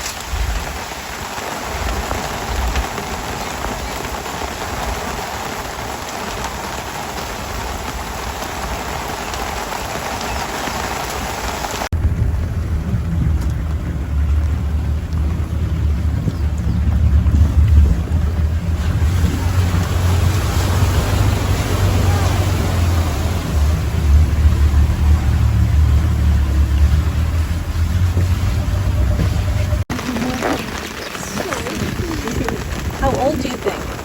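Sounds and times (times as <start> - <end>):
rain falling: 0.0 - 34.0
wind buffeting microphone: 11.9 - 34.0.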